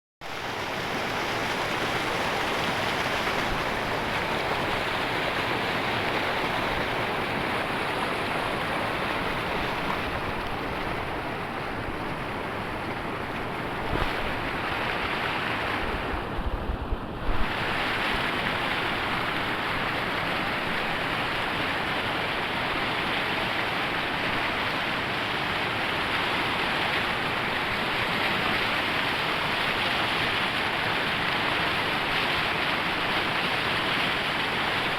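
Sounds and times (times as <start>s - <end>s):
waterfall rushing: 0.3s - 16.0s.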